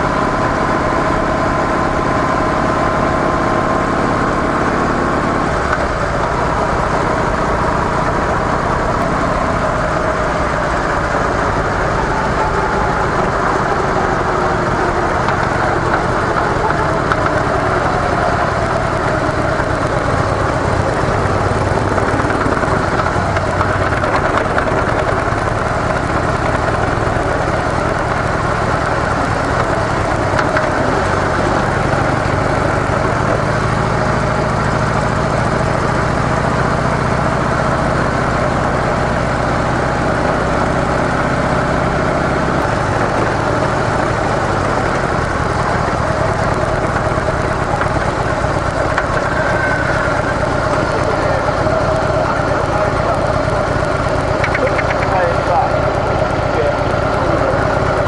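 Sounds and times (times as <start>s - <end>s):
low drone: 0.0s - 58.0s
motorcycle engine running: 0.0s - 58.0s.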